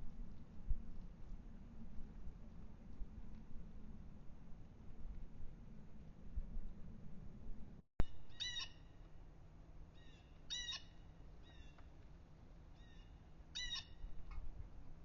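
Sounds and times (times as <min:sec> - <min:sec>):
bird calling: 0:08.0 - 0:09.0, 0:10.0 - 0:11.8, 0:12.8 - 0:14.1.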